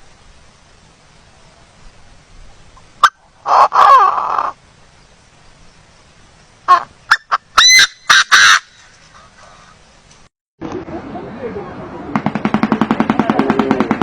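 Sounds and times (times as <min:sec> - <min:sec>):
bird calling: 0:03.0 - 0:04.6, 0:06.6 - 0:10.0.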